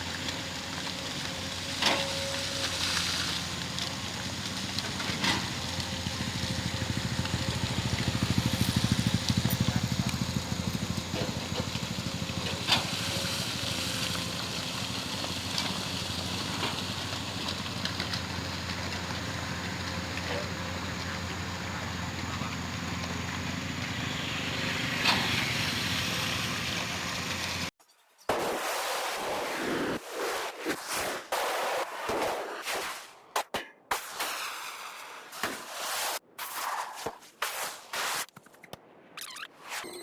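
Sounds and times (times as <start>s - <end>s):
diesel engine running: 0.0s - 27.7s.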